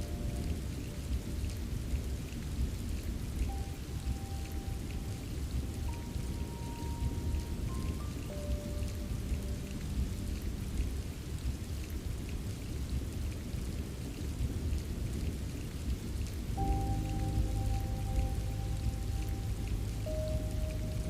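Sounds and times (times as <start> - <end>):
soft ambient music: 0.0 - 12.0, 16.5 - 21.0
steady rain: 0.0 - 21.0
low rumble: 16.6 - 21.0.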